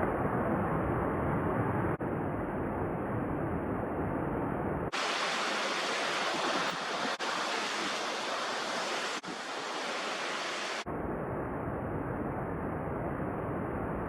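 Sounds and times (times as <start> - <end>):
strong wind rushing: 4.4 - 10.9.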